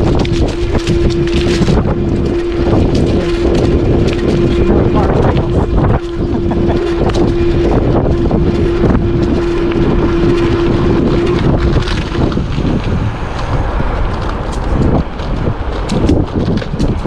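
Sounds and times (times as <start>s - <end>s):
steady hum: 0.0s - 17.0s
wind buffeting microphone: 0.0s - 17.0s
knocks and rattles from bike: 8.6s - 17.0s.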